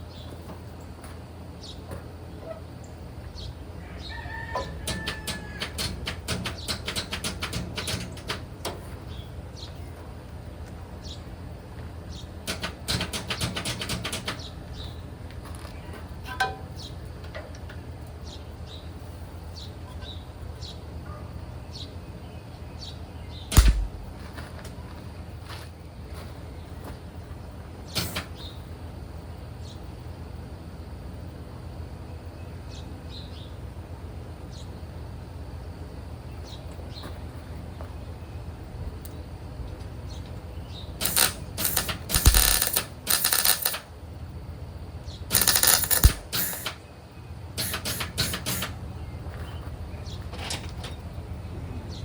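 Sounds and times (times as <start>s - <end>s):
steady low hum: 23.3s - 25.4s, 40.6s - 47.6s
loud thump: 23.5s - 24.3s
welding crackling: 23.5s - 24.3s, 41.0s - 43.8s, 45.3s - 46.7s.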